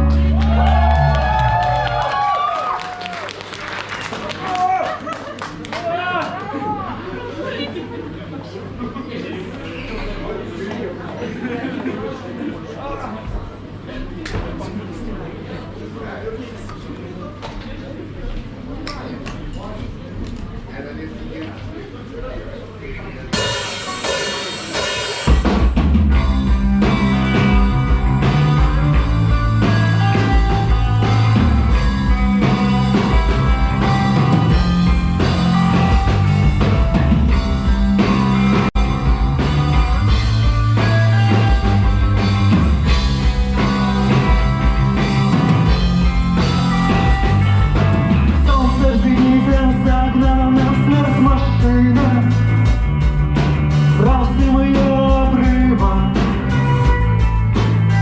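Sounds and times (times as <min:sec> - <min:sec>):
rock band playing live: 0:00.0 - 0:02.1, 0:23.3 - 0:58.0
bass line: 0:00.0 - 0:02.3, 0:23.4 - 0:58.0
drum kit beat: 0:23.4 - 0:58.0.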